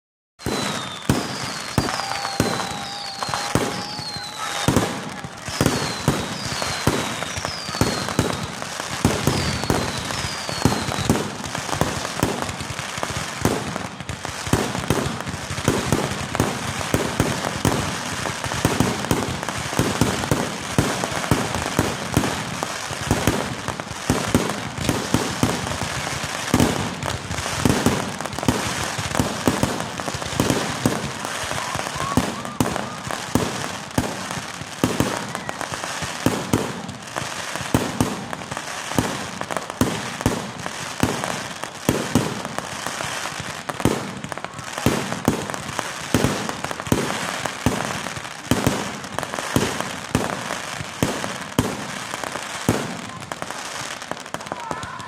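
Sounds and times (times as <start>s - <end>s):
short falling whistles: 0.4s - 4.8s, 5.5s - 8.5s, 9.4s - 11.1s
steady firework whistle: 0.4s - 12.4s, 15.8s - 36.8s
fireworks bangs and crackling: 0.4s - 55.0s.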